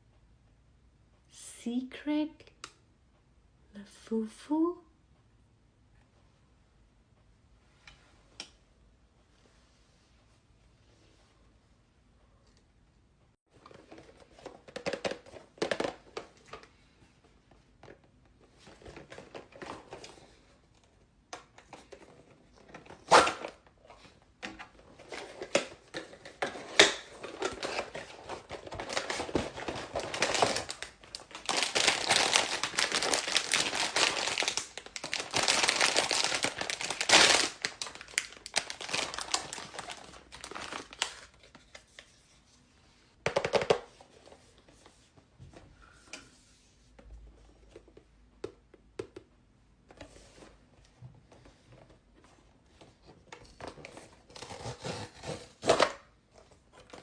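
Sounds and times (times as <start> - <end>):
plastic packaging crinkling: 24.9 - 42.1.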